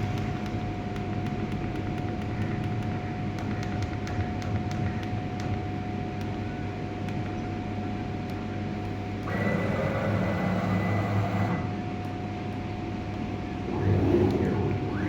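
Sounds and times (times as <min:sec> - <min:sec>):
router high whine: 0:09.2 - 0:11.8
cnc router humming: 0:09.2 - 0:12.0, 0:13.0 - 0:15.0.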